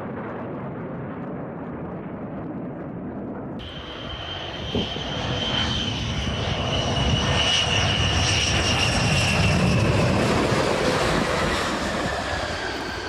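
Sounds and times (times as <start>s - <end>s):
high whine falling in pitch: 3.6s - 7.9s
airplane engine passing: 3.6s - 13.0s.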